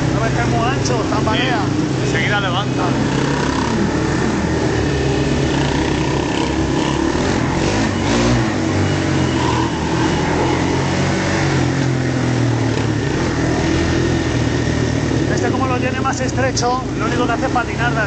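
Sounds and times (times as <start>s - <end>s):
motorbike engine running: 0.0s - 18.0s.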